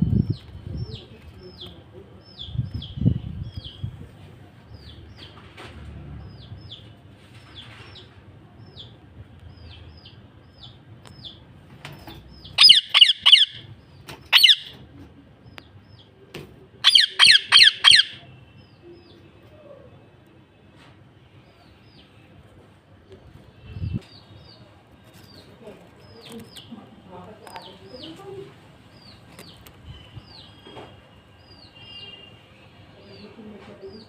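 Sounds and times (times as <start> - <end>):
parrot squawking: 12.6 - 13.7, 14.3 - 14.7, 16.8 - 18.2.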